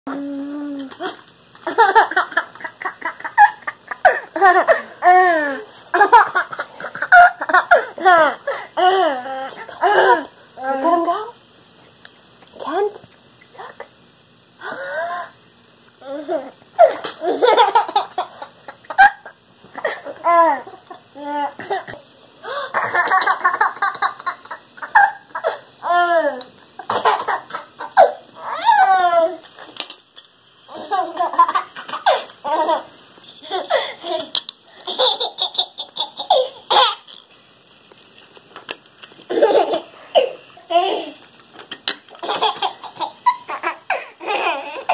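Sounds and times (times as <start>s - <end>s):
baby laughing: 1.6s - 10.3s, 16.0s - 22.0s, 22.7s - 26.0s, 30.7s - 37.2s, 39.3s - 41.2s, 42.1s - 44.9s.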